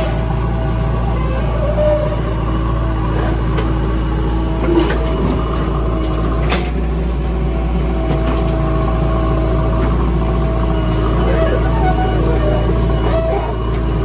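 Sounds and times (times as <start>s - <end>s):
diesel engine running under load: 0.0s - 14.0s.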